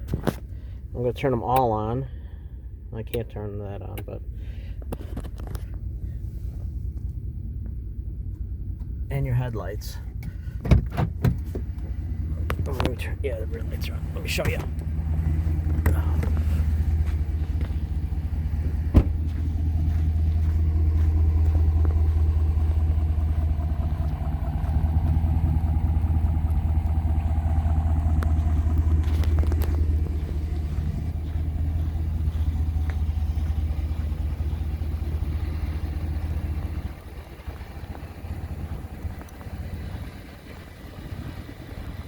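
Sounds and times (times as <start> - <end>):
truck engine idling: 0.0 - 42.0.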